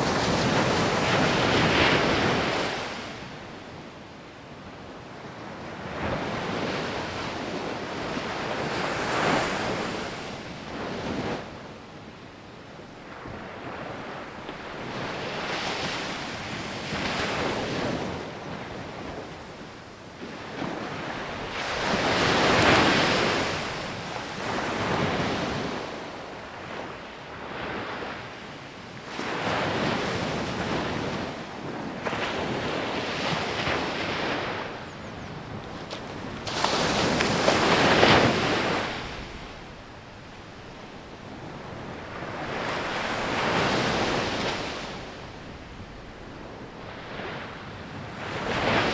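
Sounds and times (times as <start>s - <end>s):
sea waves breaking on beach: 29.1s - 39.8s.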